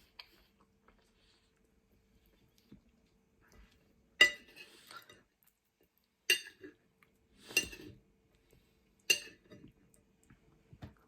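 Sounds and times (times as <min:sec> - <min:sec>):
cutlery clinking against a plate: 0:04.2 - 0:05.3, 0:06.3 - 0:06.8, 0:07.4 - 0:08.0, 0:09.1 - 0:09.7.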